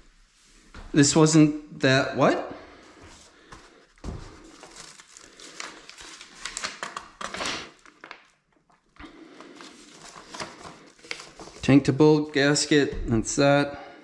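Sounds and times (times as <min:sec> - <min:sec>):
packaging rustling: 0:03.1 - 0:11.7.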